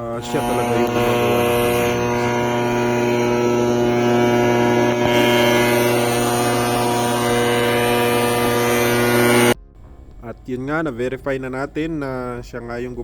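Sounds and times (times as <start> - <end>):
deep electrical hum with high tones: 0.0 - 10.2.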